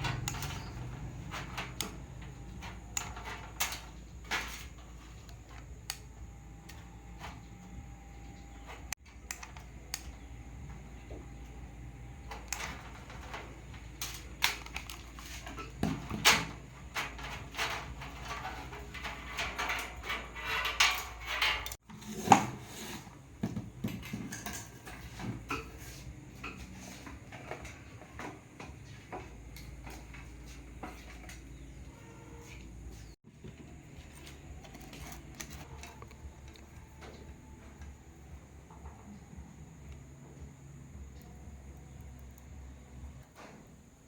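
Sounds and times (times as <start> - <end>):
small objects clicking and clattering: 12.3 - 21.8.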